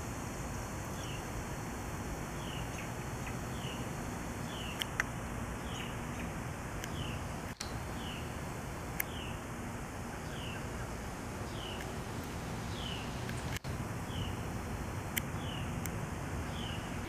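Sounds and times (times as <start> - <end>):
outdoor background noise: 0.0 - 17.0
small bird chirping: 2.4 - 5.0, 5.6 - 8.3, 10.1 - 11.9, 12.6 - 14.4, 15.2 - 17.0.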